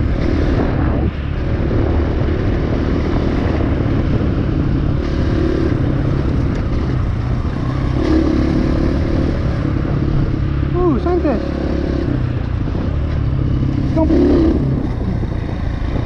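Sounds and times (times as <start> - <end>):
dirt bike engine revving: 4.8 - 16.0.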